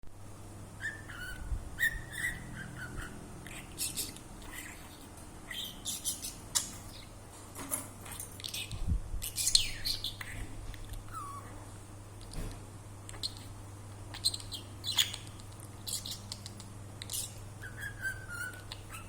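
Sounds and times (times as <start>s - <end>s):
budgerigar chirping: 0.8s - 7.2s, 9.3s - 10.4s, 11.1s - 11.5s, 14.1s - 19.0s.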